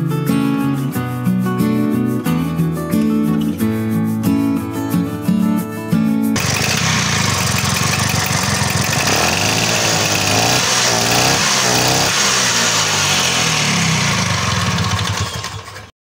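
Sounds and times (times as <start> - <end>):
scooter engine revving: 6.4 - 15.9.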